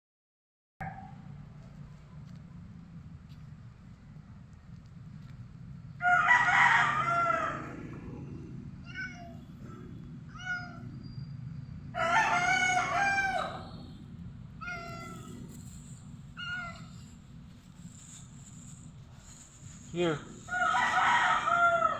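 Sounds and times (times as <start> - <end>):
cat meowing: 7.0 - 11.0, 14.6 - 17.2.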